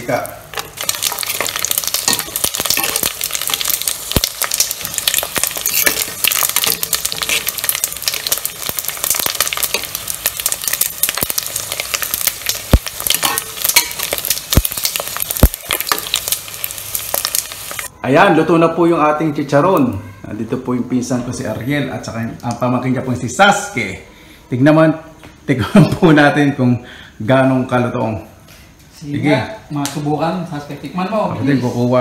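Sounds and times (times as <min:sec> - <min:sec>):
pork skin frying in oil: 0:00.0 - 0:17.9.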